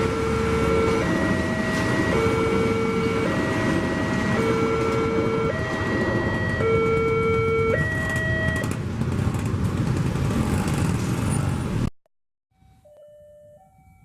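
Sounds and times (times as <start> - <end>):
two-tone alarm: 0.0 - 8.7
train rumbling past: 0.0 - 11.9.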